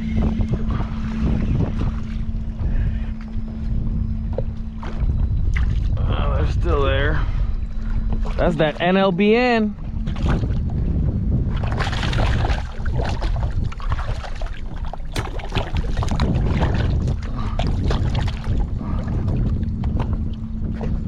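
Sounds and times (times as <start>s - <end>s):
water lapping against a hull: 0.0s - 21.0s
wind rumbling on microphone: 0.0s - 21.0s.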